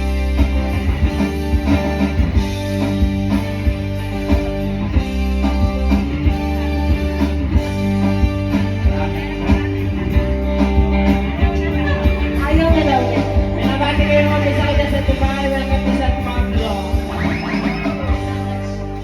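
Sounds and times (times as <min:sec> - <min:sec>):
deep bass notes: 0:00.0 - 0:19.0
guitar: 0:00.0 - 0:19.0
live rock band playing: 0:00.0 - 0:19.0
steady drum beat: 0:00.0 - 0:19.0.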